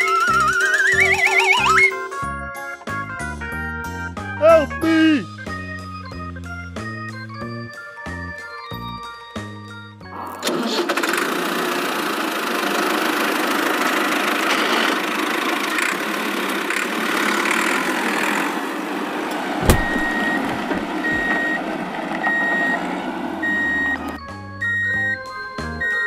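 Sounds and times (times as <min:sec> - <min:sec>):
reversing alarm beeping: 0:00.0 - 0:02.1, 0:19.6 - 0:22.8, 0:23.4 - 0:26.0
heavy vehicle engine rumble: 0:12.4 - 0:24.2
sharp thump: 0:19.6 - 0:21.4.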